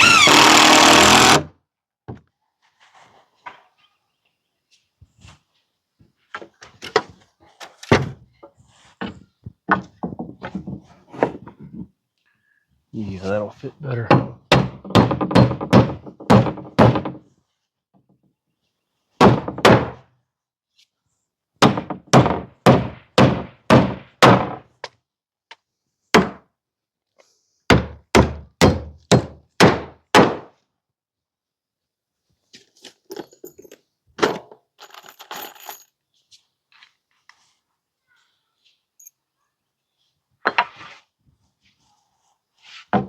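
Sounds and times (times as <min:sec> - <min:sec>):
hammer striking nails into wood: 0:14.1 - 0:17.2, 0:21.6 - 0:24.6, 0:27.7 - 0:30.5.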